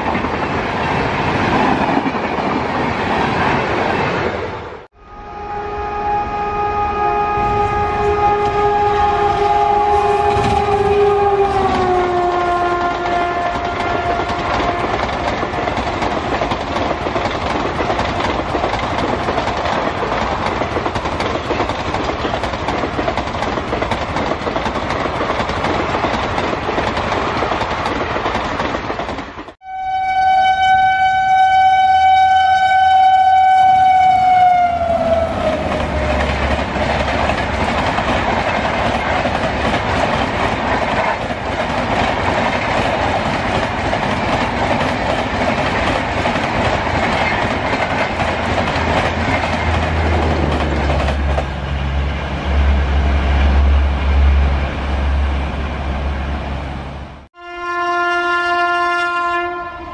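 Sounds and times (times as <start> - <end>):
locomotive horn: 4.9 - 15.6, 29.6 - 36.4, 49.9 - 56.4, 57.4 - 59.9
train wheels clattering over rails: 11.6 - 29.6, 35.4 - 52.0.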